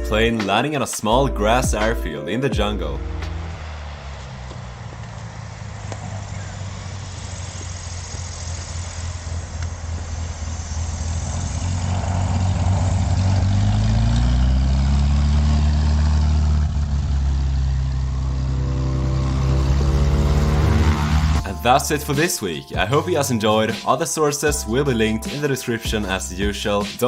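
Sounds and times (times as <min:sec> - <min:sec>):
propeller and airflow rush: 0:03.1 - 0:21.6
light aircraft engine running: 0:03.3 - 0:21.4.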